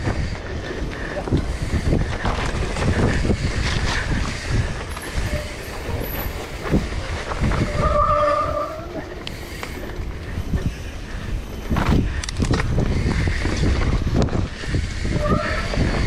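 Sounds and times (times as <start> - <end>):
mountain bike rattling downhill: 0.0 - 16.0
disc brake squeal: 7.6 - 8.9.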